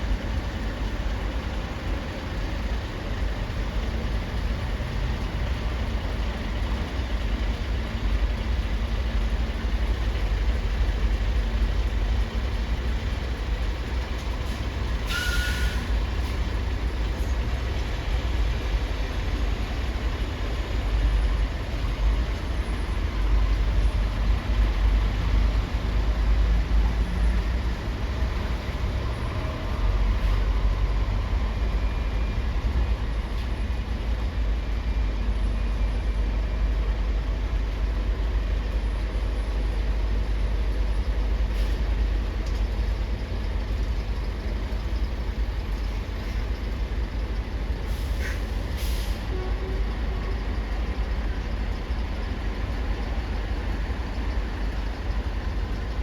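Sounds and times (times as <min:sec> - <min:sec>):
heavy trucks rumbling: 0:00.0 - 0:56.0
air brake hiss: 0:14.5 - 0:16.4, 0:41.5 - 0:41.8, 0:47.8 - 0:49.4.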